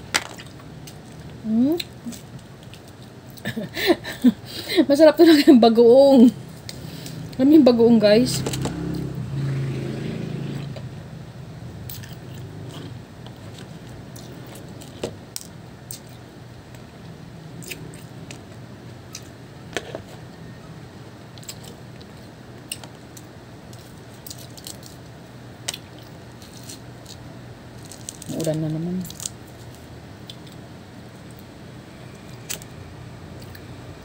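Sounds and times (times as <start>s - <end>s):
low background hum: 0.0s - 34.0s
person chewing and biting fruit: 11.9s - 16.2s, 17.6s - 20.1s.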